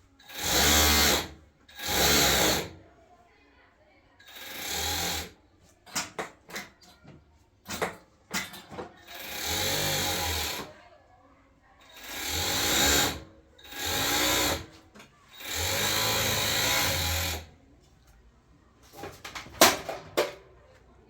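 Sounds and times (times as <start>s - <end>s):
sewing machine stitching: 0.2s - 2.8s, 4.2s - 5.4s, 8.4s - 10.8s, 11.8s - 17.5s.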